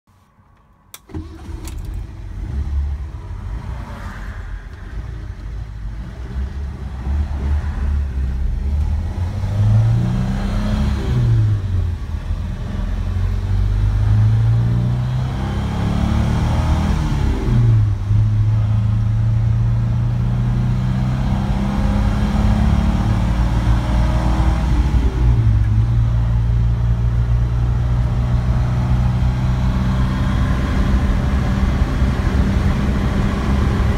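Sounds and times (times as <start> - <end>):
car engine starting and idling: 0.2 - 33.9
car accelerating through gears: 5.9 - 11.8, 12.4 - 17.9, 19.8 - 25.6, 27.8 - 33.9.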